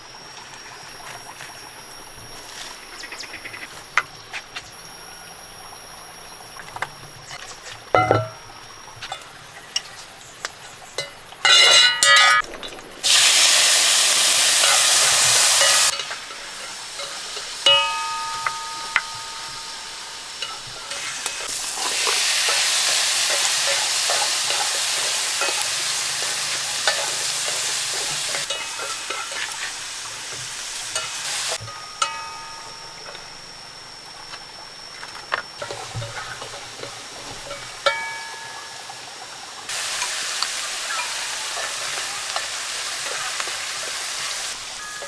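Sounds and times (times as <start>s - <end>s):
food sizzling in a pan: 7.4s - 34.8s, 35.5s - 45.0s
metal utensil clinking: 11.0s - 13.2s, 14.0s - 33.4s, 35.6s - 45.0s
loud hissing: 12.4s - 31.6s, 39.6s - 45.0s.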